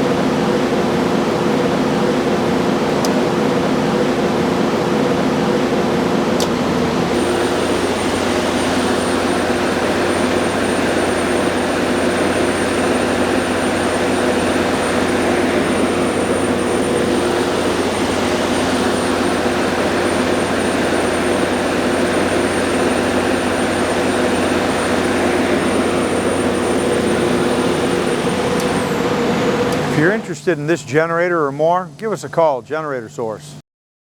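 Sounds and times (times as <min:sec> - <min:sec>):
diesel generator drone: 0:00.0 - 0:33.6
thin high whine: 0:07.1 - 0:33.4.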